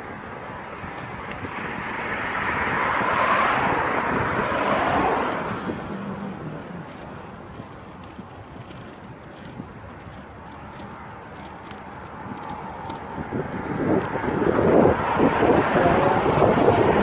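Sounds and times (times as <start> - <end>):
car passing by: 0.8 - 9.6, 11.7 - 17.0.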